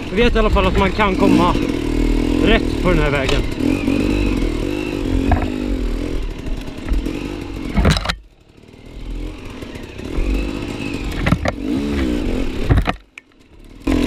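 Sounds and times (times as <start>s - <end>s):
dirt bike engine revving: 0.0s - 14.0s
sharp knocks: 5.1s - 5.6s.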